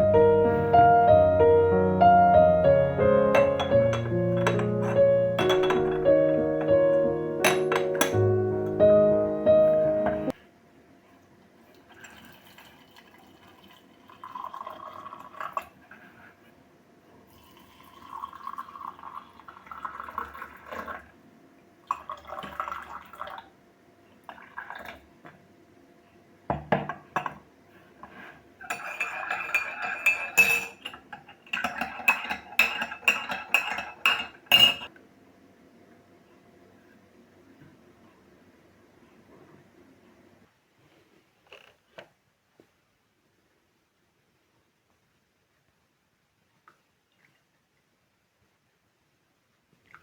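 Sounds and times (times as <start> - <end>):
crockery and cutlery clattering: 3.3 - 6.7, 7.4 - 8.3, 28.6 - 34.9
liquid pouring: 11.7 - 16.0, 17.3 - 21.1, 21.9 - 23.5, 24.2 - 25.0.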